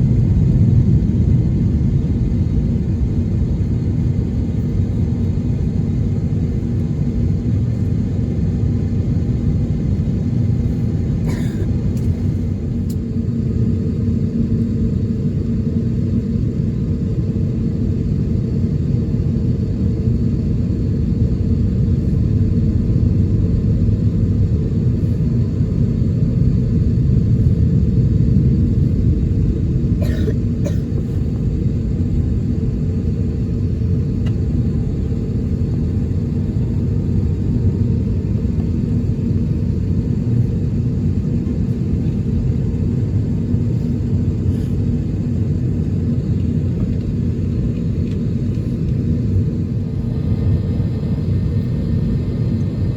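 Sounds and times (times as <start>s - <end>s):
aircraft cabin rumble: 0.0s - 52.9s.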